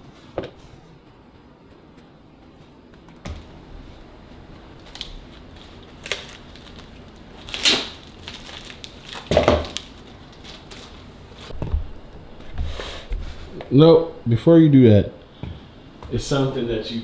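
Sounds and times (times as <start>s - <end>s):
food packaging crinkling: 3.4s - 11.6s.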